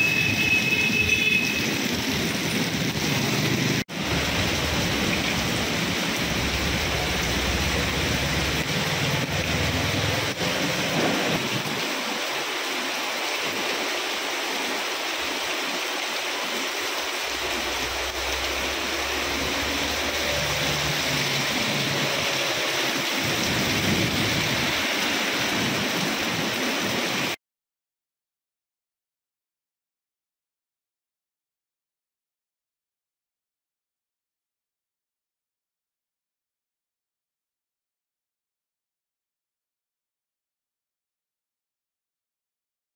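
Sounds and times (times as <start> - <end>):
rain on a wet street: 0.0 - 27.4.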